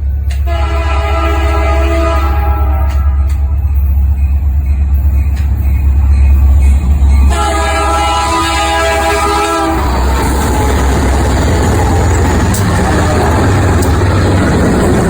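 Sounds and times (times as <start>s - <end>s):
train rumbling: 0.0s - 15.0s
locomotive air horn chord: 0.4s - 3.5s, 7.3s - 10.6s.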